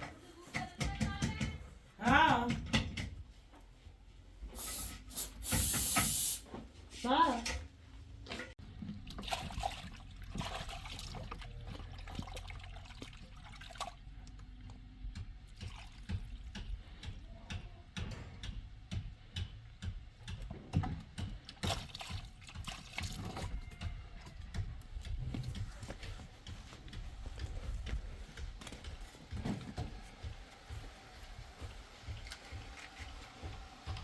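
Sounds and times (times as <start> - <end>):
water splashing and trickling: 8.6 - 16.7, 21.5 - 23.9.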